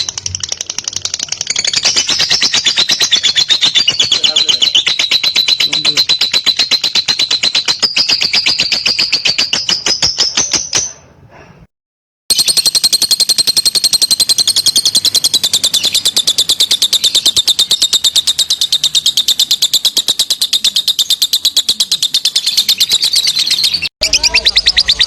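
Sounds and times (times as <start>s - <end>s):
lovebird chattering: 0.0s - 11.0s, 12.3s - 25.0s.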